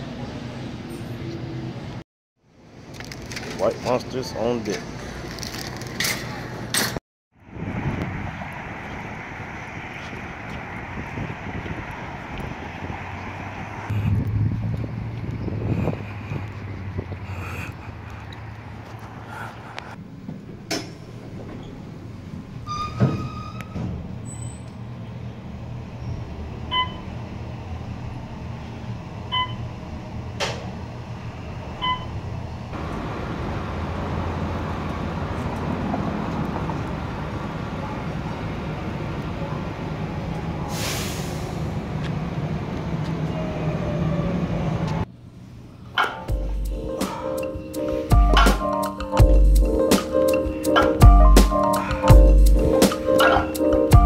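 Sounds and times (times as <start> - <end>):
vehicles rumbling: 0.0 - 54.0
air brake hiss: 40.7 - 41.7.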